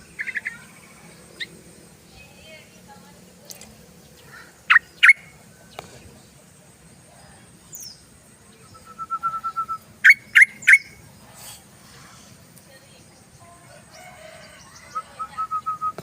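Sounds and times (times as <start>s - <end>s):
bulbul calling: 0.0s - 1.6s, 4.2s - 5.8s, 7.7s - 11.0s.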